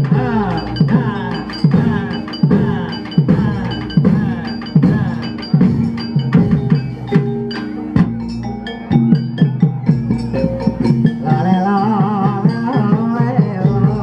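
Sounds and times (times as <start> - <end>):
hand drum strokes: 0.0 - 8.2
struck keyed instruments ringing: 0.0 - 14.0.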